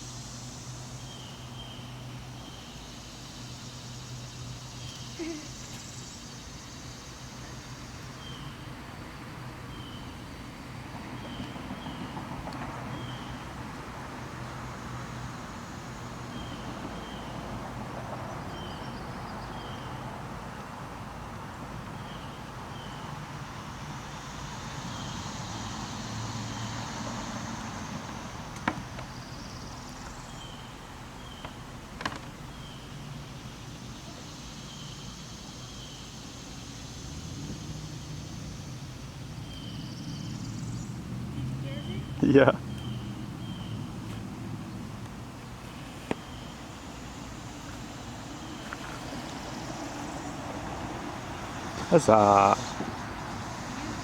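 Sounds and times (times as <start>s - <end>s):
high insect buzz: 0.0s - 8.6s, 22.1s - 40.9s, 45.4s - 54.0s.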